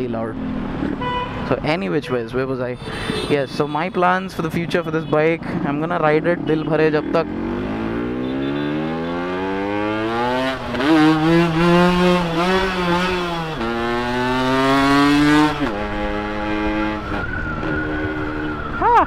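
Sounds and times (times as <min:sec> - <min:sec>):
motorcycle engine accelerating: 0:04.4 - 0:18.9.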